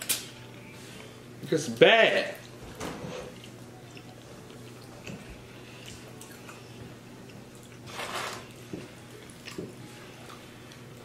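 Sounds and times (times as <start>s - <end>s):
steady low hum: 0.0s - 11.0s
people chewing with wet smacks: 3.3s - 7.9s, 8.5s - 11.0s.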